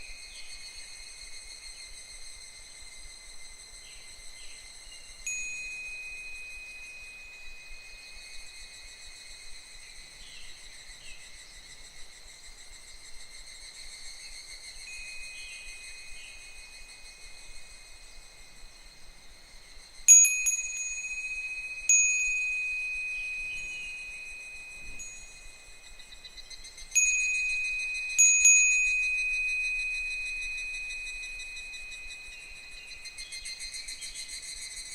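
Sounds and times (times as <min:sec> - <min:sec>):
faint cicadas calling: 0:00.0 - 0:34.9
wind chime ringing: 0:05.2 - 0:08.9, 0:14.9 - 0:17.0, 0:20.1 - 0:33.9.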